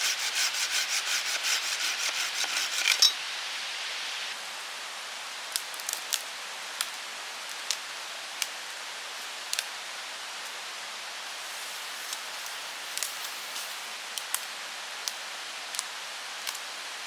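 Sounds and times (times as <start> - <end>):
steady hiss: 0.0 - 17.0
campfire crackling and popping: 5.5 - 7.8, 12.1 - 16.6.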